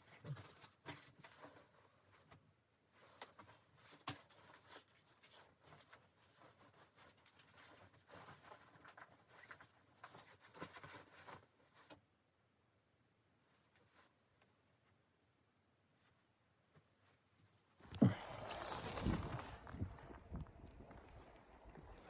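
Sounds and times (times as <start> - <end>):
faint rustling with clicks: 0.0 - 12.1.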